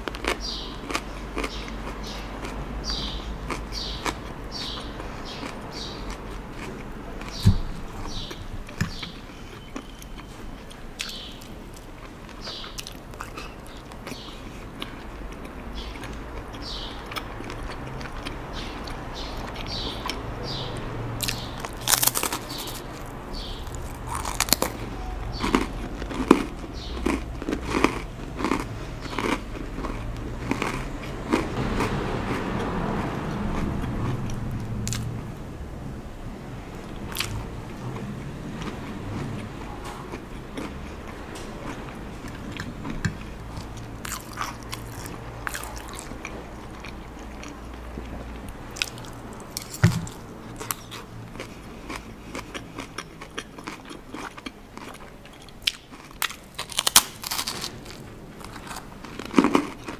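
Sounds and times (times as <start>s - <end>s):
wet chewing clicks: 0.0s - 35.2s, 36.7s - 59.9s
crunchy chewing: 0.0s - 35.3s, 36.7s - 59.9s.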